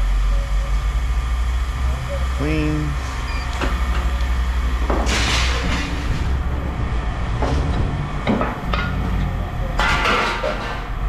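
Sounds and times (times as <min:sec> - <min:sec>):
low engine rumble: 0:00.0 - 0:11.0
scrap metal clanking: 0:04.8 - 0:06.4, 0:07.4 - 0:11.0
loud clattering crash: 0:04.8 - 0:06.5, 0:07.3 - 0:11.0.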